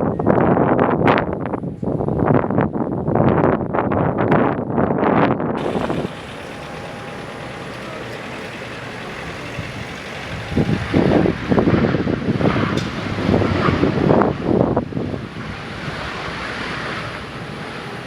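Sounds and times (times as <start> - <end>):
wind buffeting the microphone: 0.0 - 18.0
mechanical hum: 5.6 - 18.0.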